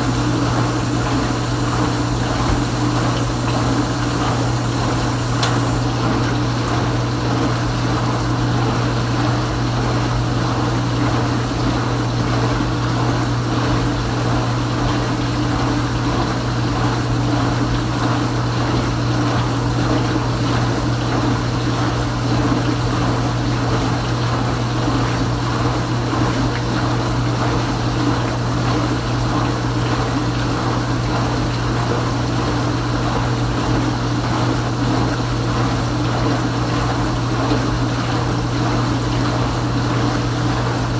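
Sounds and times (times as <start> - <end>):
water spraying in dishwasher: 0.0 - 6.3
dishwasher motor hum: 0.0 - 40.9.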